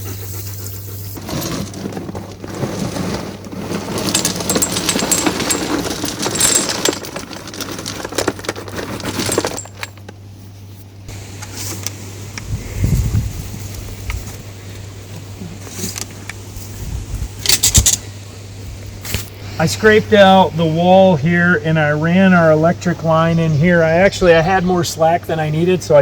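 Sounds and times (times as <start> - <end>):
gravel clattering: 1.1 - 10.4, 12.8 - 18.1.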